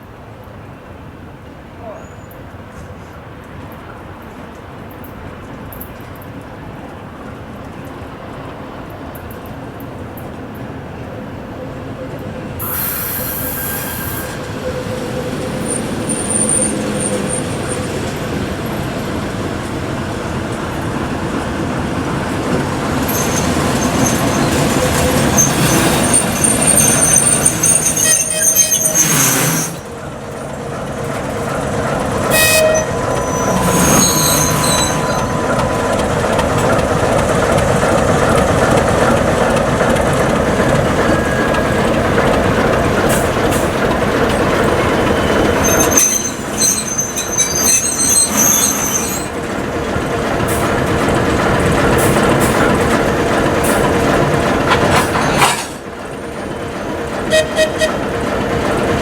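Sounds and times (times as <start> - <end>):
diesel locomotive engine running: 6.4 - 59.0
high wheel squeals: 12.6 - 18.6, 21.4 - 49.6, 57.2 - 58.9.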